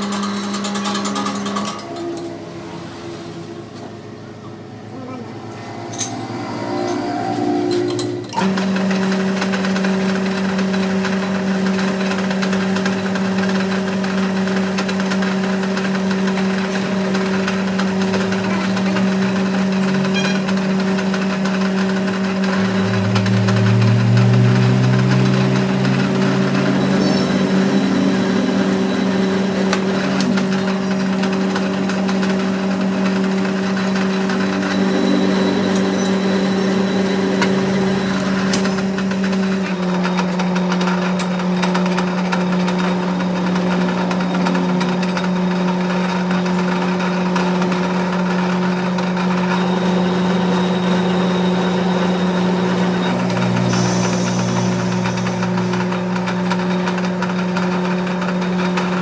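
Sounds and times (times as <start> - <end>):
low tone: 0.0 - 9.5, 16.5 - 41.2, 49.3 - 57.5
workshop machine humming: 0.0 - 59.0.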